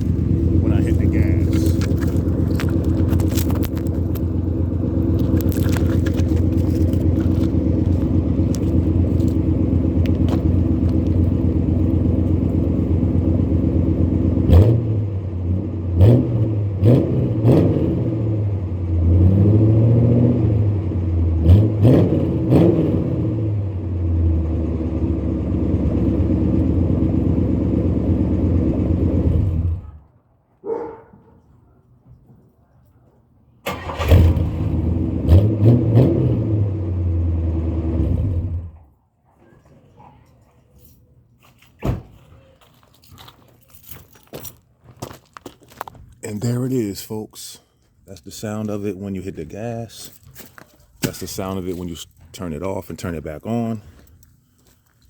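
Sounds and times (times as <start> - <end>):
car engine idling and revving: 0.0 - 30.1, 33.7 - 39.0.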